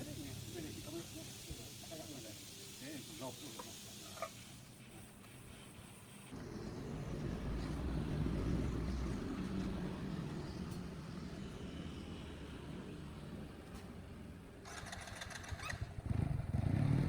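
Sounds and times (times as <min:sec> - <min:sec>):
low motor rumble: 0:06.4 - 0:12.0.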